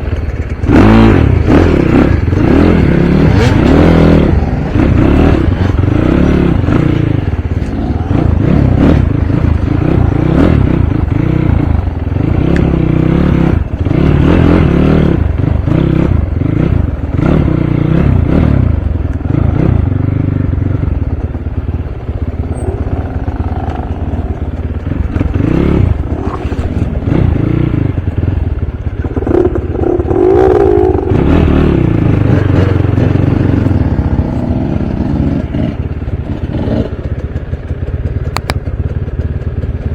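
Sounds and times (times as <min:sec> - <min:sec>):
dirt bike engine revving: 0:00.0 - 0:21.0, 0:21.6 - 0:37.3.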